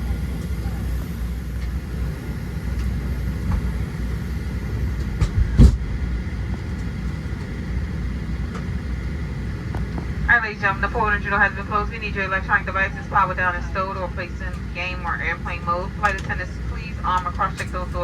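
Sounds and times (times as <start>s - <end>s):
aircraft cabin air rumble: 0.0s - 18.0s
loud thump: 5.2s - 5.9s.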